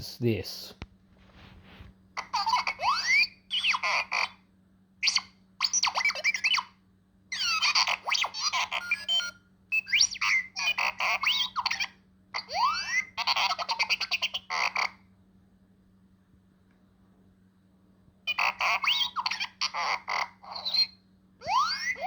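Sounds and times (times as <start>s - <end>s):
robot chirping beeps and whistles: 5.0s - 14.6s, 18.3s - 22.0s.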